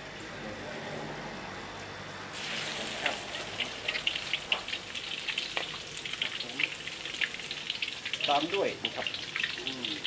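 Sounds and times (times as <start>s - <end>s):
garlic sizzling in hot oil: 2.3s - 10.0s.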